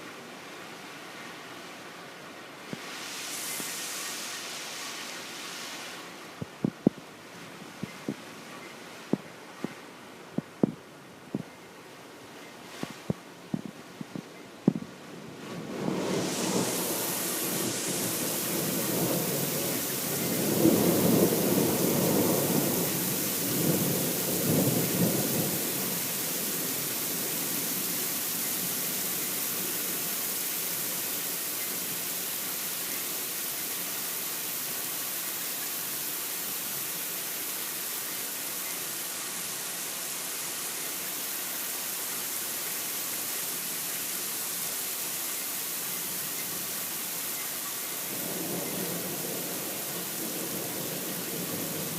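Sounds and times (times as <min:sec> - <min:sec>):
steady rain hiss: 0:00.0 - 0:51.9
rolling thunder: 0:15.4 - 0:26.8.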